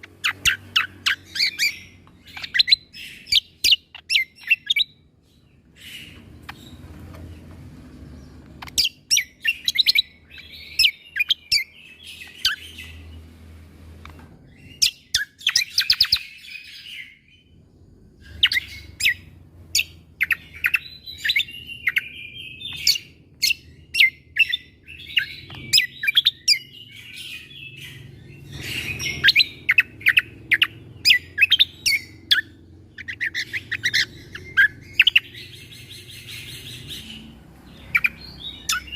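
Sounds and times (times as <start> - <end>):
bird singing rapid sharp notes: 0.0 - 13.6, 14.4 - 17.5, 18.2 - 38.9.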